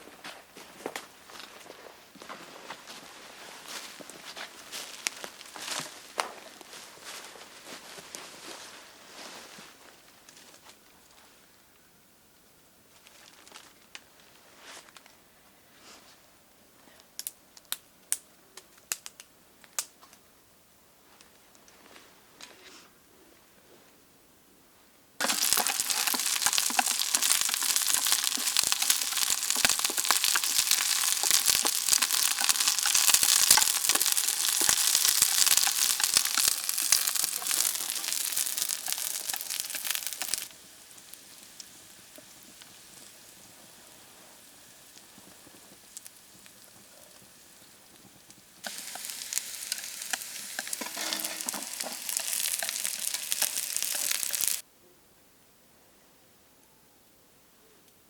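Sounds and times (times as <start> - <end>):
food sizzling in a pan: 25.2 - 54.6.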